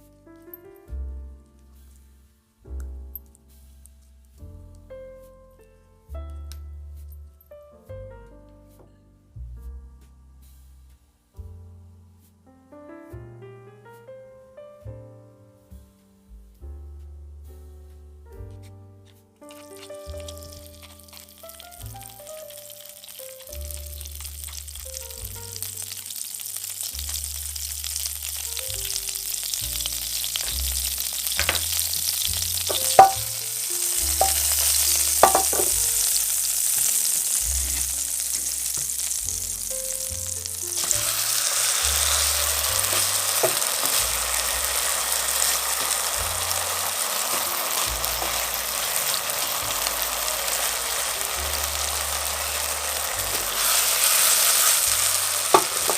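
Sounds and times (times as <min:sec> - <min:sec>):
soft background music: 0:00.0 - 0:55.9
steak sizzling in a pan: 0:19.4 - 0:55.9.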